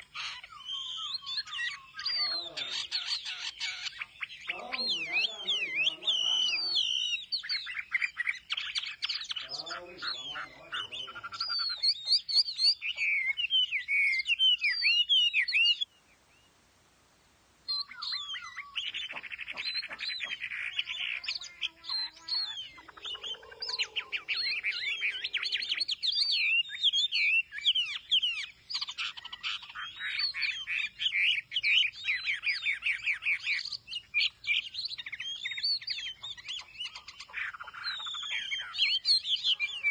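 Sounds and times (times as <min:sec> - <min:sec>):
bird singing whistles and trills: 0:00.0 - 0:16.5, 0:17.7 - 0:39.9.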